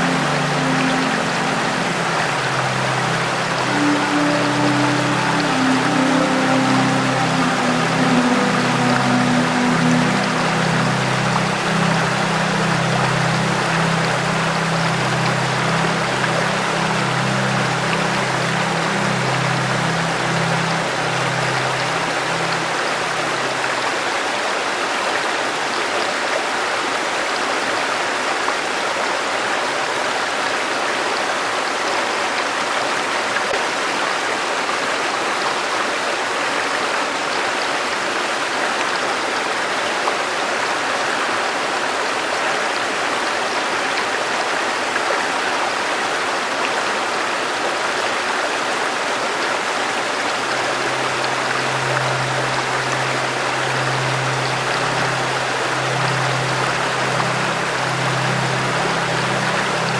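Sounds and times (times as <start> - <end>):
low soft music tone: 0.0 - 24.9, 49.2 - 59.9
river stream flowing: 0.0 - 59.9.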